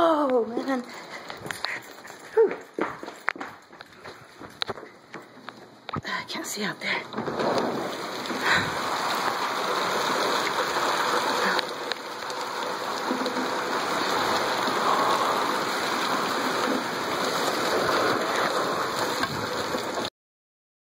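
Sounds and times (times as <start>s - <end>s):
heavy rain: 6.1s - 20.1s.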